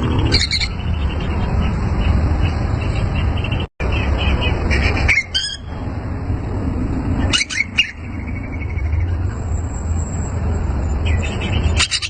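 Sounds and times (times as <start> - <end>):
bird chirping: 0.0 - 5.8, 7.2 - 12.0.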